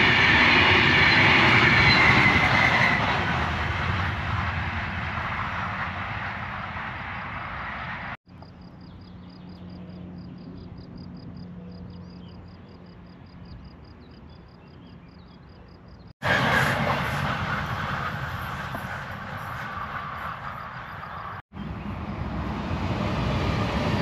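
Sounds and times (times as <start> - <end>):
train passing with rail noise: 0.0 - 14.6, 15.4 - 24.0.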